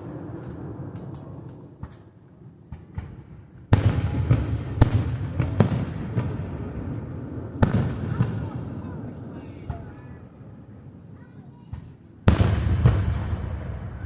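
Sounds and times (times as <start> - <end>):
fireworks booming and banging: 0.0 - 14.0
faint firework pops: 0.3 - 2.1, 2.7 - 8.4.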